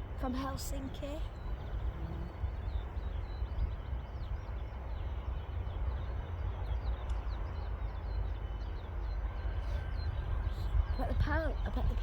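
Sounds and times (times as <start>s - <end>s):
small birds chirping: 0.2s - 12.0s.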